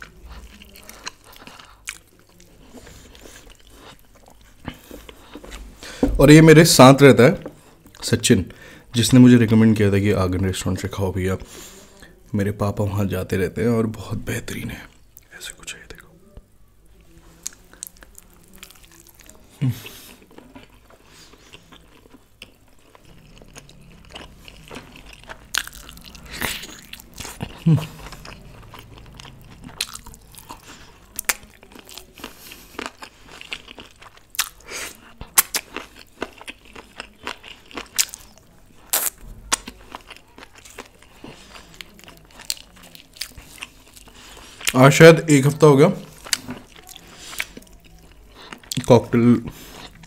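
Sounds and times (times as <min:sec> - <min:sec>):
close chewing with wet smacks: 0:00.0 - 0:05.7, 0:17.4 - 0:50.0.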